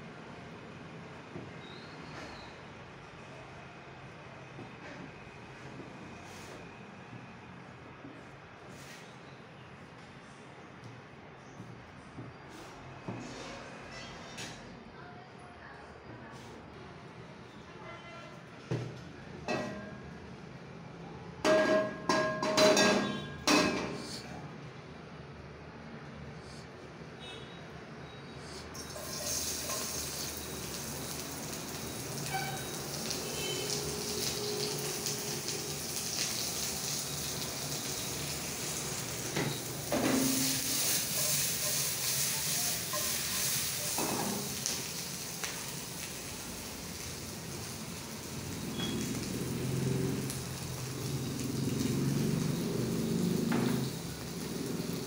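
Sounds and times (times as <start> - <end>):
utensil knocking on wok: 21.4 - 23.9
vegetables sizzling in a wok: 28.6 - 55.0.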